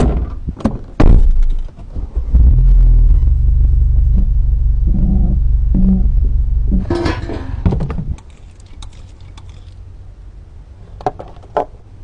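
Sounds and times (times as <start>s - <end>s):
car engine idling: 2.4s - 8.0s, 8.7s - 11.4s.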